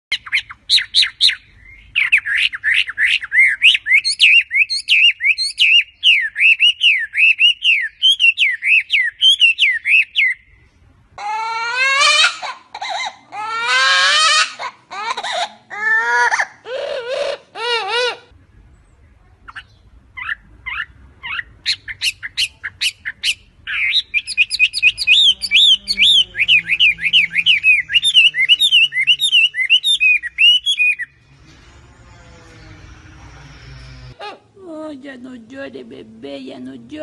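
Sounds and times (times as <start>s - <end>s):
wavering wailing bird calls: 0.1s - 10.5s, 11.2s - 18.4s, 19.5s - 34.5s
bird chirping high notes: 23.7s - 34.2s.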